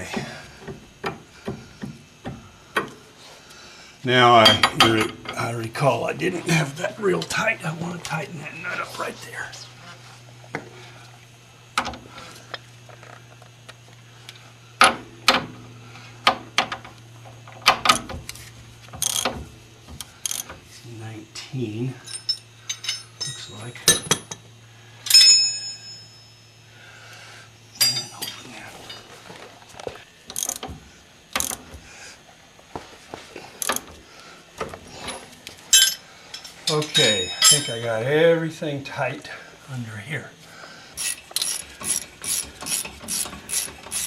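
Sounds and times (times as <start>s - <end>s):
steady low hum: 0.0s - 44.0s
metal hand tools clinking: 22.0s - 24.4s, 27.8s - 29.1s, 35.7s - 37.9s, 41.0s - 44.0s
wrench fitting onto nut: 41.0s - 44.0s.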